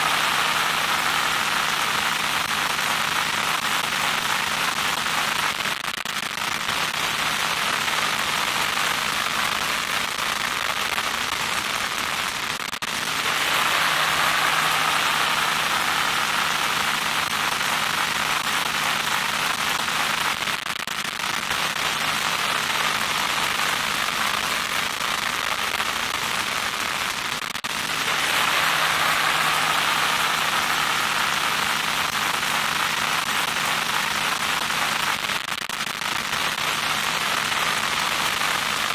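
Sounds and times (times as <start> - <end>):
crackling static hiss: 0.0 - 38.9
faint steady hum: 12.9 - 20.3, 27.7 - 35.1.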